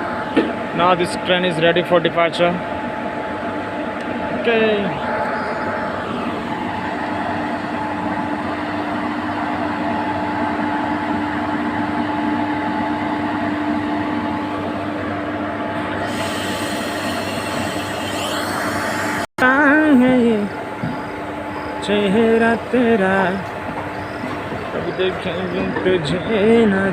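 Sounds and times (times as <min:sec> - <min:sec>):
goods train rumbling: 0:00.0 - 0:13.4, 0:14.0 - 0:26.9
locomotive hum: 0:00.0 - 0:26.9
high hissing noise: 0:16.0 - 0:19.3.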